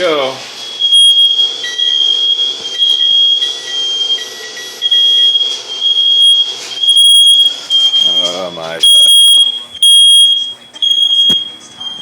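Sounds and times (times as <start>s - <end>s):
lower alarm tone: 0.0s - 12.0s
smoke alarm beeping: 0.0s - 12.0s.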